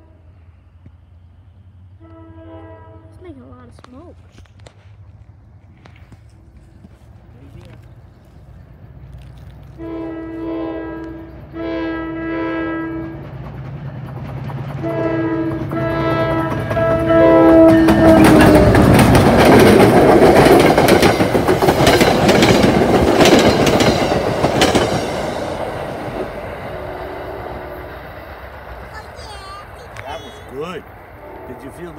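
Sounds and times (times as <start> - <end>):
train horn blasts: 0.0 - 0.5, 1.9 - 3.4, 9.7 - 13.3, 14.8 - 18.9, 26.7 - 28.0, 31.2 - 31.9
train rumbling past: 0.0 - 31.9
wheels clicking over rail joints: 13.0 - 26.4.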